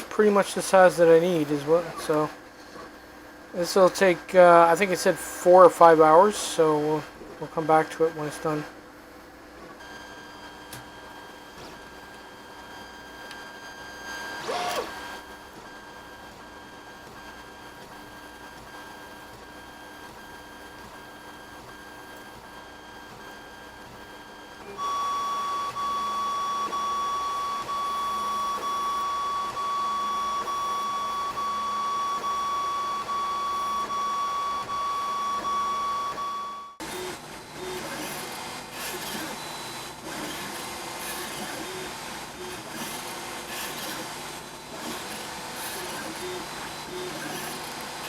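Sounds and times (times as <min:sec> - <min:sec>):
stepper motors whining: 0:13.3 - 0:15.8, 0:24.6 - 0:48.0.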